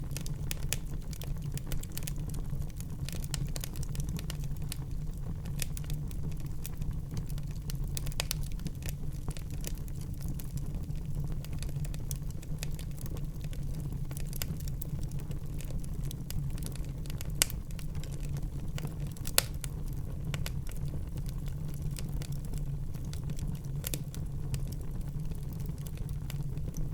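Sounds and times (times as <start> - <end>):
fire flames rumbling: 0.0 - 26.9
wood fire crackling and popping: 0.0 - 26.9
sharp fire pops: 17.1 - 20.6.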